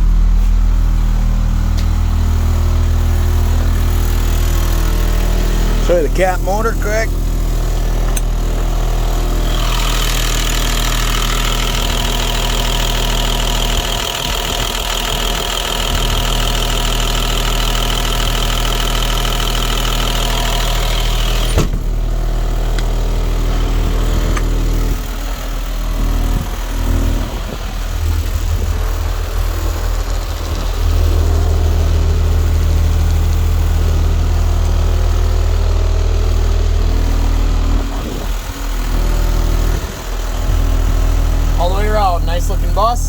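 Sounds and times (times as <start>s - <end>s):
diesel bus engine idling: 0.0s - 43.0s
high whine: 36.8s - 43.0s.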